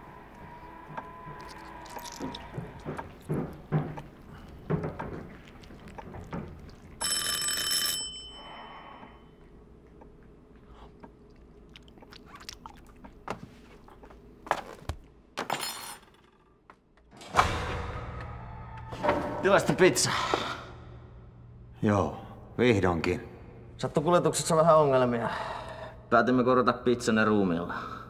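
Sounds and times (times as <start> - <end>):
doorbell ringing: 7.0 - 8.6.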